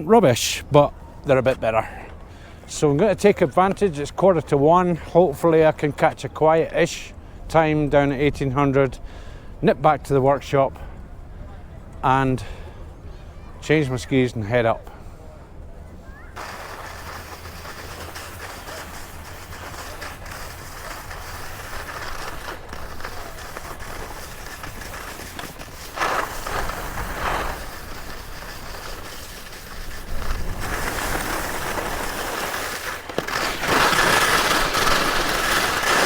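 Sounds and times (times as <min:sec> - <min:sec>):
wind rumbling on microphone: 0:15.3 - 0:32.4
skis scraping over snow: 0:16.3 - 0:36.0.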